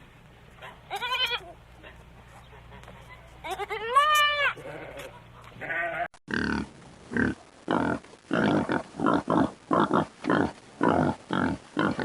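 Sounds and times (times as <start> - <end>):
goat bleat: 0.9 - 1.6, 3.4 - 6.1.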